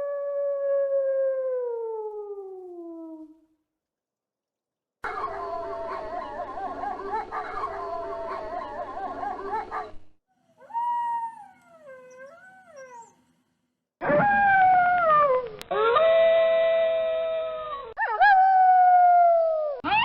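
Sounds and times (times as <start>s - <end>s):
wolves howling: 5.0s - 10.0s.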